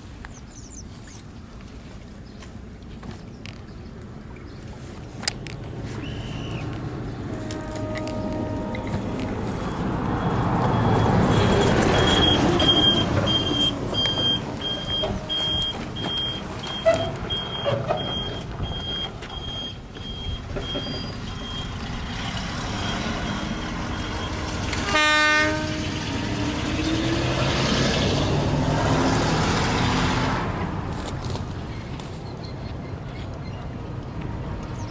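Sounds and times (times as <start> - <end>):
train running: 3.4 - 34.9
train horn blast: 5.9 - 17.8, 22.6 - 29.0
high electronic beeps: 10.2 - 21.7.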